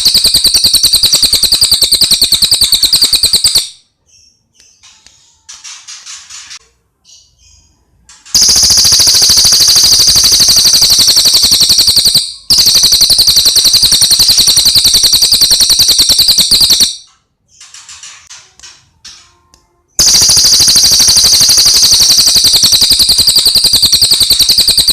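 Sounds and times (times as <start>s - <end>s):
songbird rattling trills: 8.4s - 17.0s, 20.0s - 24.9s.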